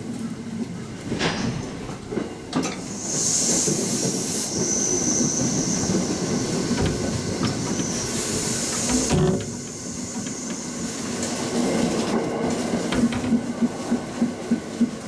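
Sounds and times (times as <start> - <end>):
train wheels rumbling: 0.0 - 15.0
rail clicks: 0.6 - 15.0
high wheel squeal: 3.0 - 10.7.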